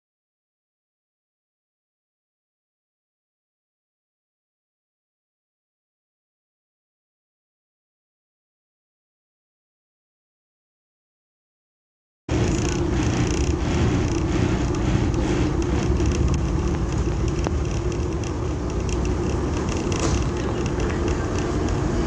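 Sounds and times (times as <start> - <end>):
train rumbling: 12.3 - 22.0.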